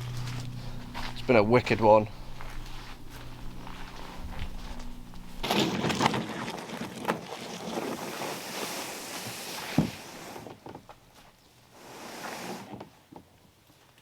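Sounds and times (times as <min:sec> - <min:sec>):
wind noise on microphone: 0:00.0 - 0:05.6.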